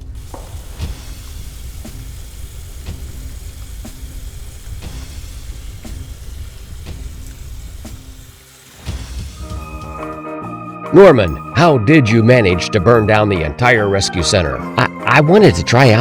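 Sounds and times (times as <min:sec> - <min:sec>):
fire hose spraying water: 0:00.0 - 0:10.2.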